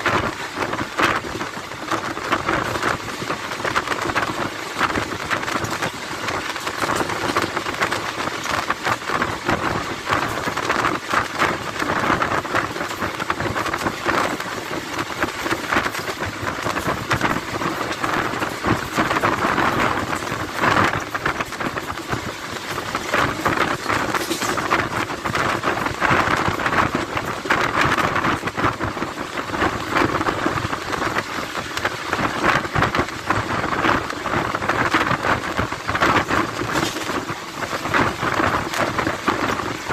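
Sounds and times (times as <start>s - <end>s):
constant fine rattle: 0.0s - 39.9s
train wheels on rails: 0.0s - 39.9s
wind rushing past train door: 0.0s - 39.9s.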